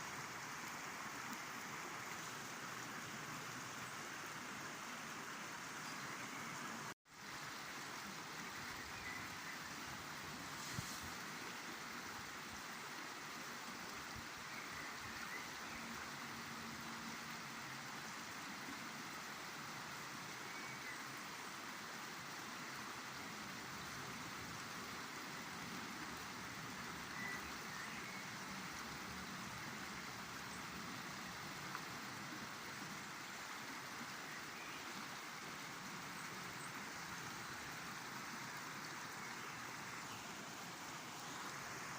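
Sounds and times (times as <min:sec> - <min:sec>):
river water rushing: 0:00.0 - 0:41.9.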